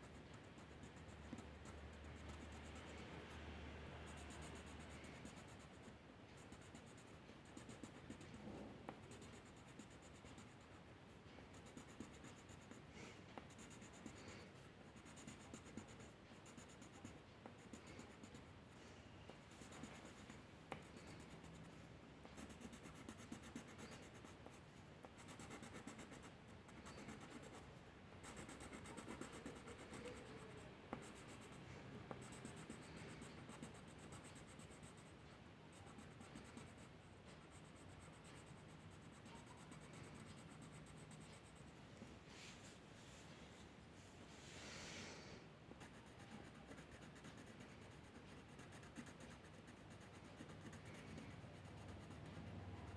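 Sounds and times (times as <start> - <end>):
drawing tool scratching paper: 22.4 - 24.3, 28.2 - 31.6, 45.8 - 52.5.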